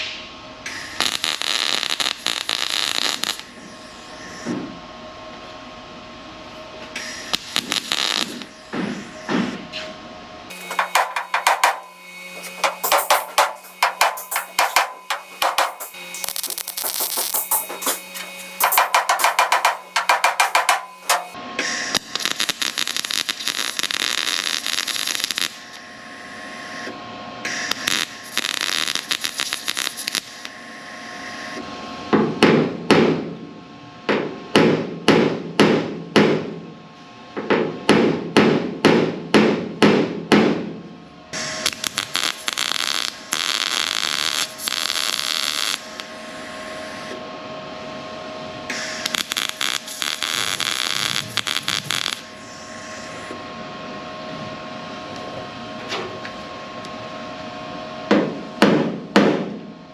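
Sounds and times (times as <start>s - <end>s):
hammer striking sheet metal: 10.5s - 21.4s
welding crackling: 10.5s - 21.4s, 27.9s - 30.3s, 41.7s - 45.9s, 49.0s - 52.2s.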